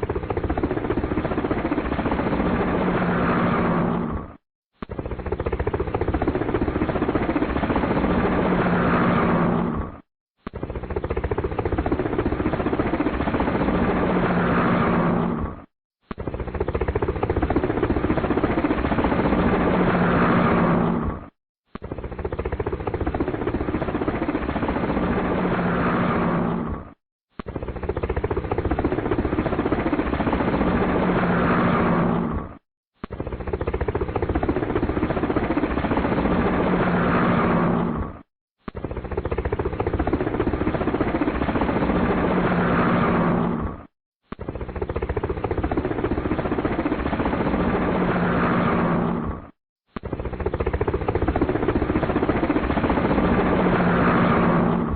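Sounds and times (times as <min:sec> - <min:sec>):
helicopter rotor and engine: 0:00.0 - 0:54.9.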